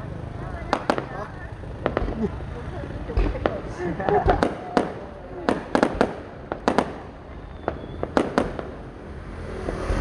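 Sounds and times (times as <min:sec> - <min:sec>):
fireworks bangs and pops: 0:00.6 - 0:08.9.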